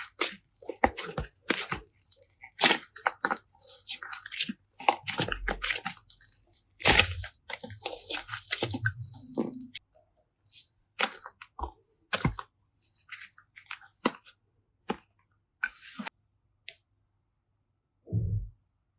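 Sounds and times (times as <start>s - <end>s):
slime squishing and clicking: 0.0s - 9.8s.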